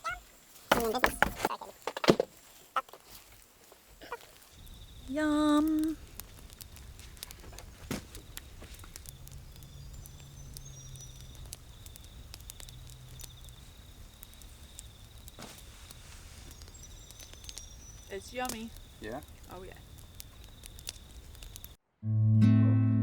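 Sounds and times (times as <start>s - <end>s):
small clicks and crackles: 2.8s - 21.8s
faint high chirps: 8.2s - 21.8s.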